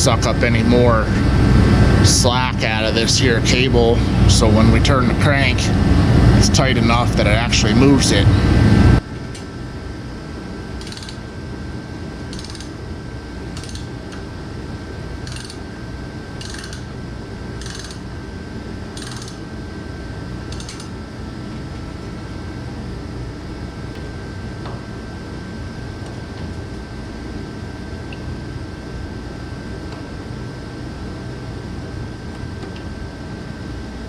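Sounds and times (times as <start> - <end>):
steady low hum: 0.0 - 34.0
ratchet wrench clicking: 10.8 - 11.2, 12.3 - 12.7, 13.6 - 13.9, 15.2 - 15.6, 16.4 - 16.8, 17.6 - 18.0, 19.0 - 19.4, 20.5 - 20.9.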